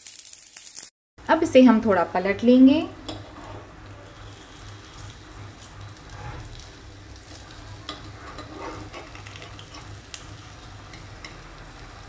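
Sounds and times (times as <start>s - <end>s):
batter sizzling in oil: 3.0s - 12.0s
metal spoon scraping pan: 3.1s - 4.5s, 7.5s - 10.0s.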